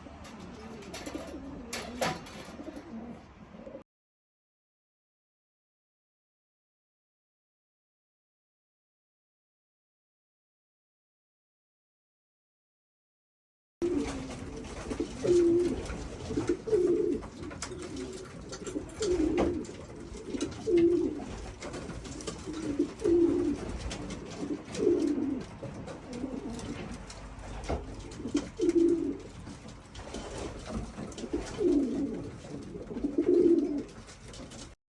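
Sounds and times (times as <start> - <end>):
pigeons cooing: 0.0 - 3.8, 13.8 - 34.8.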